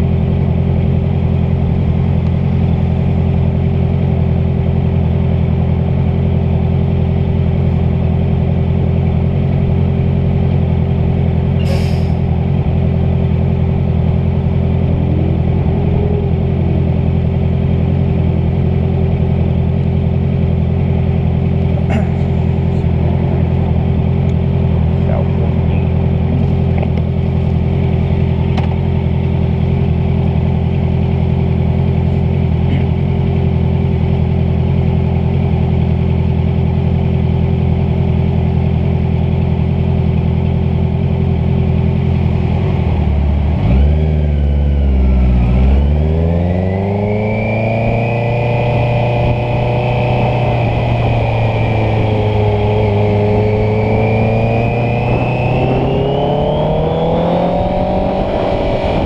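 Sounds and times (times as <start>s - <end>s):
motorcycle engine running: 0.0s - 59.0s
wind noise: 54.4s - 59.0s.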